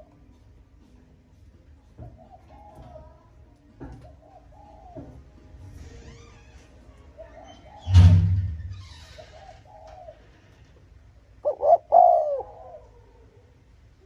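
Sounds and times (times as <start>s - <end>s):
dove cooing: 2.0s - 3.3s, 4.0s - 5.3s, 9.2s - 10.7s, 11.3s - 13.7s.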